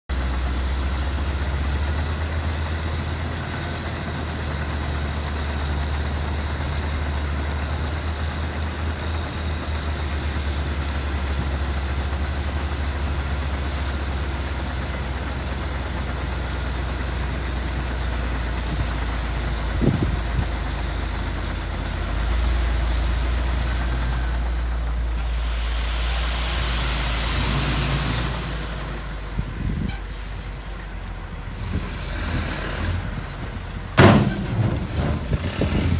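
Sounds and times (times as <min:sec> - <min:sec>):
dump truck engine rumbling: 0:00.1 - 0:35.9
loud hiss of air: 0:25.1 - 0:29.4.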